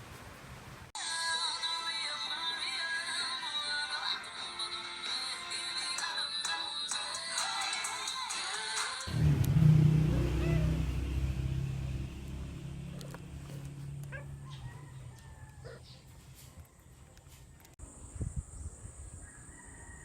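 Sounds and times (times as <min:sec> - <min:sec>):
vehicle engine rumbling past: 0:09.1 - 0:16.2.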